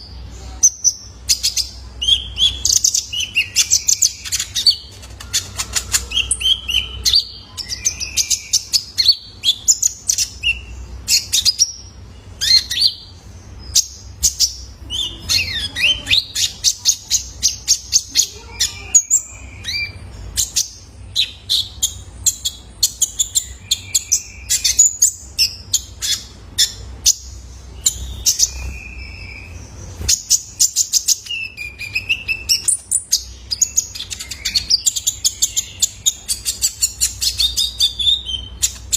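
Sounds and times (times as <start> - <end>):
faint low hum: 0.0 - 38.9
sunbird chirping and trilling: 0.0 - 38.9.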